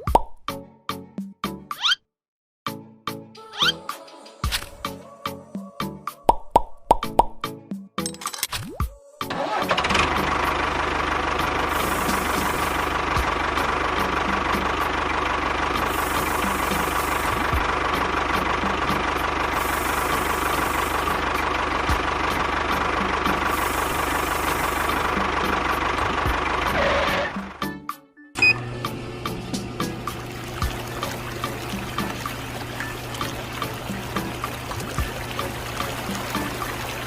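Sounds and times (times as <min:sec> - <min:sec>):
motor humming and rattling: 0:09.4 - 0:27.6, 0:28.4 - 0:37.0.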